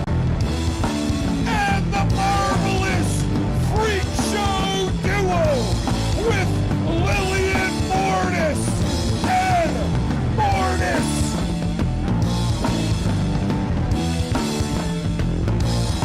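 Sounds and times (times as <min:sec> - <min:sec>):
loud punk rock band: 0:00.0 - 0:16.0.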